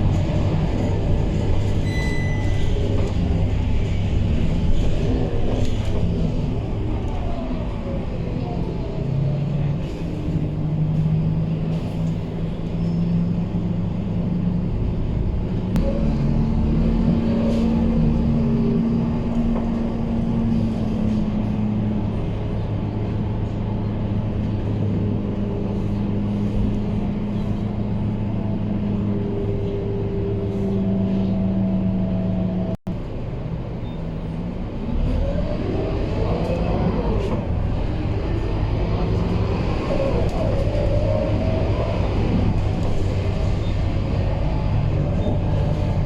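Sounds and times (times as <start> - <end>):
bus diesel engine running: 0.0 - 46.0.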